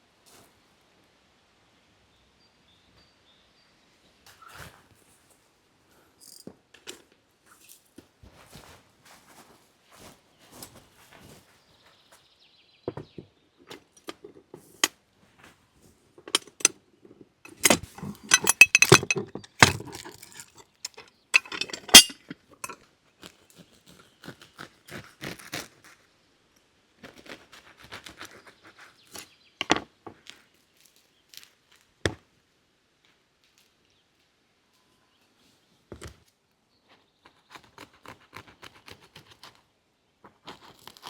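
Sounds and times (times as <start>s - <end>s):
dishes and utensils clinking: 16.2s - 16.7s, 17.5s - 22.8s.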